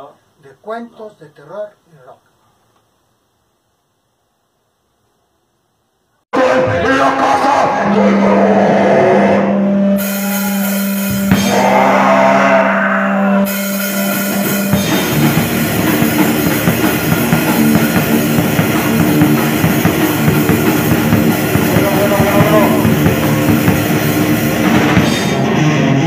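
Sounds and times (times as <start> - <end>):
low held note: 7.6 - 26.0
rock song with drum kit: 10.0 - 12.6, 13.4 - 26.0.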